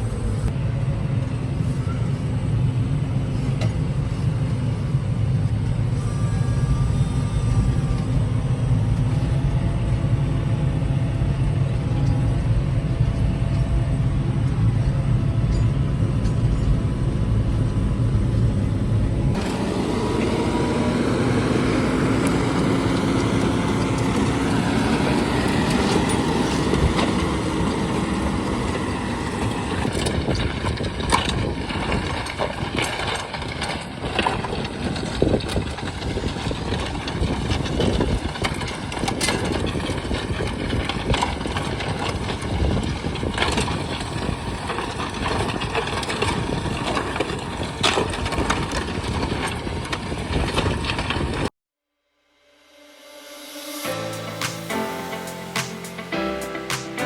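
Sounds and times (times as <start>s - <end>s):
tractor engine running: 0.0s - 51.5s, 53.9s - 57.0s.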